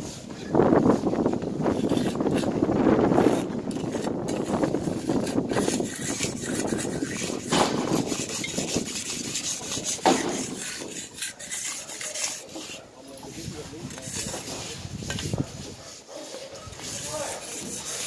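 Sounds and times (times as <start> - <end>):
rough scraping strokes: 0.0 - 18.0.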